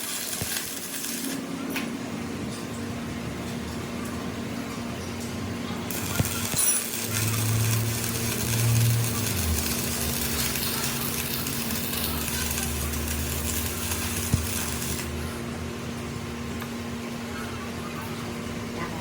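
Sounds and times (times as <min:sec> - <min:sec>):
workshop machine humming: 0:00.0 - 0:19.0.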